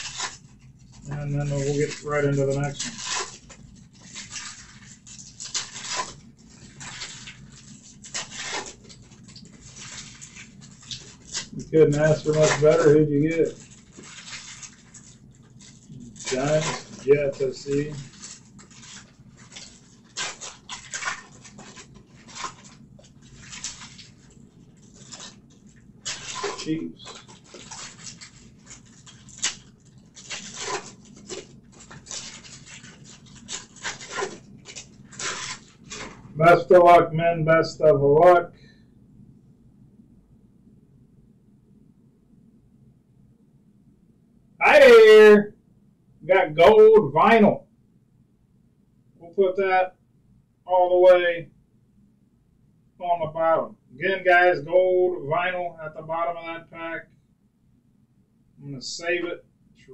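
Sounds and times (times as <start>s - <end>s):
cards and wrappers rustling: 0.0s - 36.9s.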